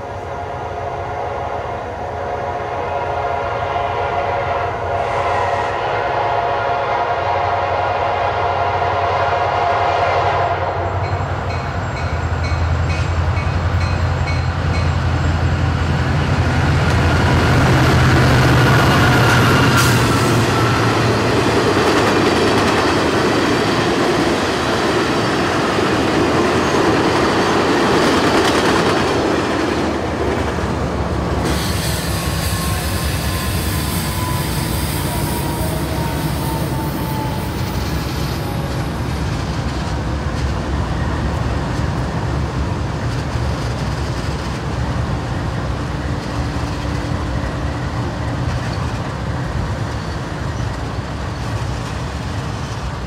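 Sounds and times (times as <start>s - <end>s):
train horn chord: 0.2s - 11.1s, 32.1s - 37.8s.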